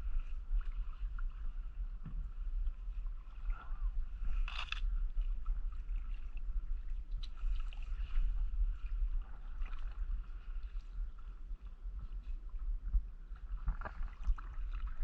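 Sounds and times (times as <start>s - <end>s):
steady low rumble: 0.0s - 15.0s
paddle splashing in water: 13.3s - 15.0s.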